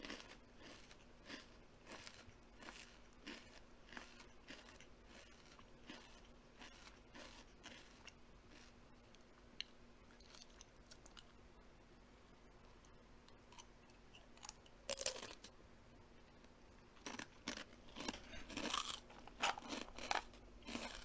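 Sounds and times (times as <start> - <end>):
person chewing something crunchy: 0.0 - 11.3, 17.0 - 21.0.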